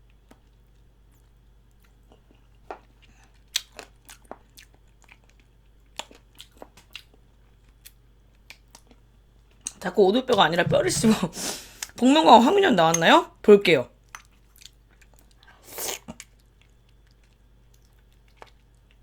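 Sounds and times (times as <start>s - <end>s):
crunchy chewing: 1.1s - 9.8s.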